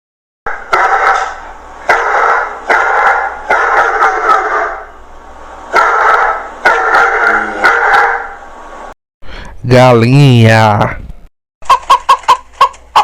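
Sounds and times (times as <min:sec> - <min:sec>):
dog barking: 0:00.5 - 0:04.9, 0:05.7 - 0:08.4.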